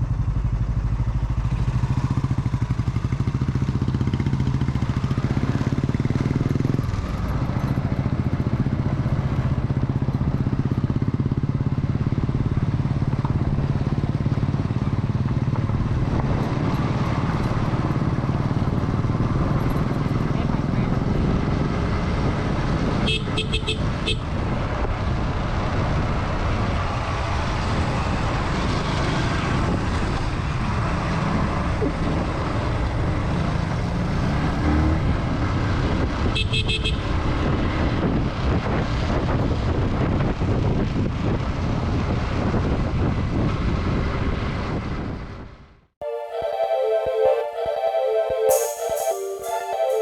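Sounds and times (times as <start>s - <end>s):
motorcycle engine rumble: 0.0s - 25.2s
horn short beeps: 46.0s - 50.0s.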